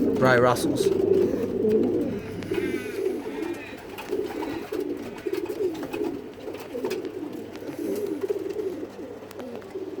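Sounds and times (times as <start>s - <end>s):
birds clicking and scuffing: 0.0s - 10.0s
pigeons cooing: 0.0s - 10.0s.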